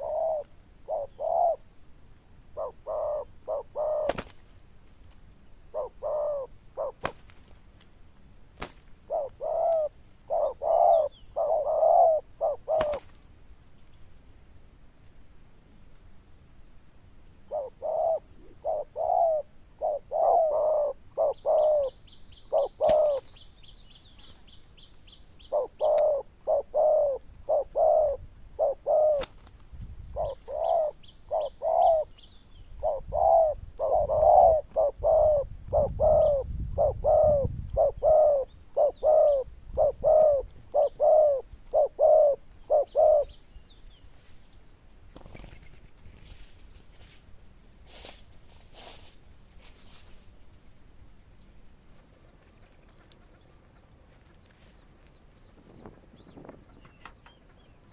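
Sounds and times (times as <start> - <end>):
dove cooing: 0.0 - 1.7, 2.5 - 4.3, 5.7 - 7.2, 9.0 - 13.1, 17.5 - 23.4, 25.4 - 29.4, 30.0 - 43.4.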